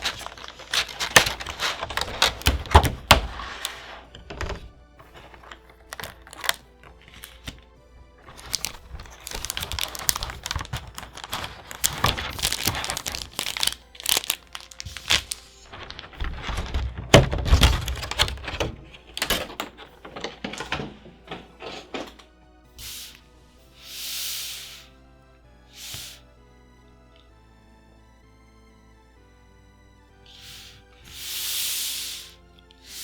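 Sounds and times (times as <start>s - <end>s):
packaging rustling: 0.0s - 22.2s
plastic and paper crinkling: 0.0s - 22.3s.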